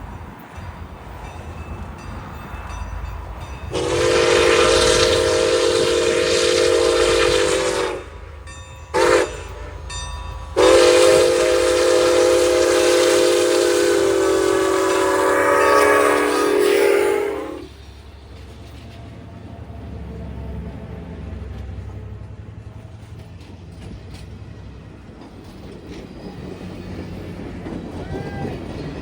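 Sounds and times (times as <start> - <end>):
passing train rumble: 0.0 - 29.0
locomotive air horn blasts: 3.7 - 8.2, 8.9 - 9.8, 10.6 - 17.7.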